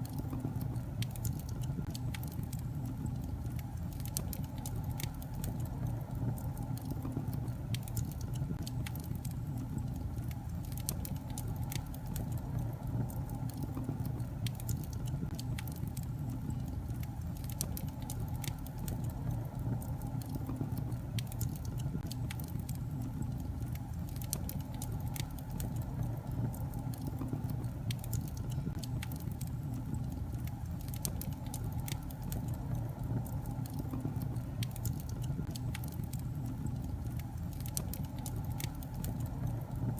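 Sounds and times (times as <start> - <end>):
flames rumbling in fireplace: 0.0 - 39.9
logs crackling and popping: 0.0 - 39.9.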